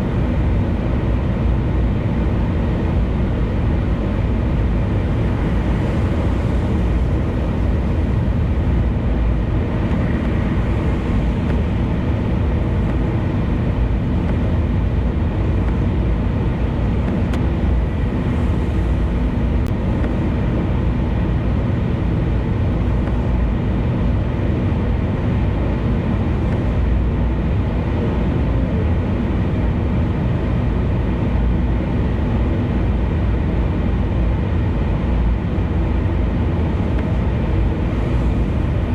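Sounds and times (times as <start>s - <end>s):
car road and wind noise: 0.0s - 38.9s.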